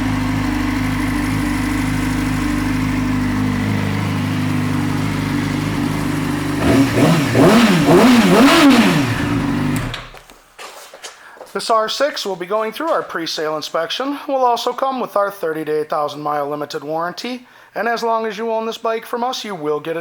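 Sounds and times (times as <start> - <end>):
motorcycle engine idling: 0.0 - 10.2
motorcycle engine revving: 0.0 - 10.2.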